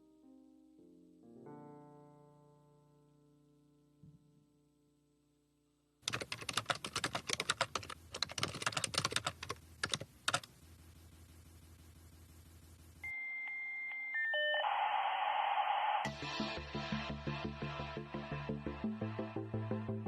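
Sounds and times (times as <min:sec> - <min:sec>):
computer keyboard typing: 0:06.0 - 0:10.5
electronic beep tones: 0:13.0 - 0:16.1.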